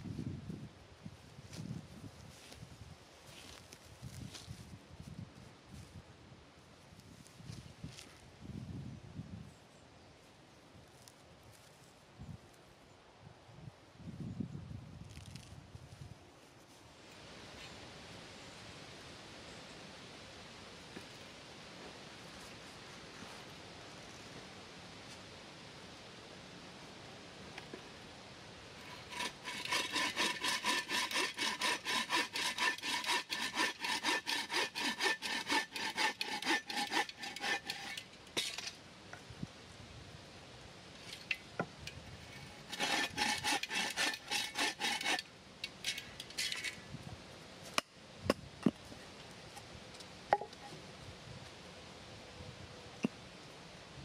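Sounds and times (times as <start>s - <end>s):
hand saw cutting wood: 28.8s - 38.7s, 42.2s - 46.8s.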